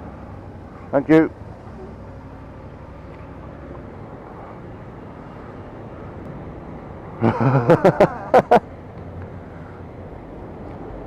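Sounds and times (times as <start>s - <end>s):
vehicle engines idling: 0.0s - 11.0s.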